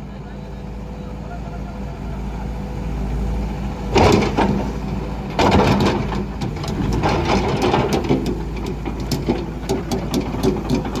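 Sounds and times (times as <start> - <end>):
excavator diesel engine: 0.0 - 11.0
sharp ticks and knocks: 5.4 - 11.0.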